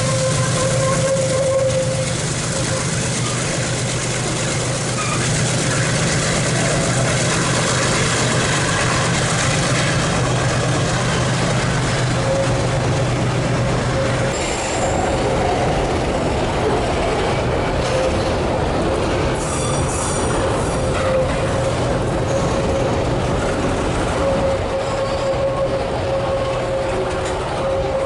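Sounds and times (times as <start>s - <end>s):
high wheel squeal: 0.0s - 3.7s, 4.7s - 13.1s, 13.9s - 15.8s, 19.4s - 23.0s, 24.1s - 28.0s
freight train wheels rumbling: 0.0s - 28.0s.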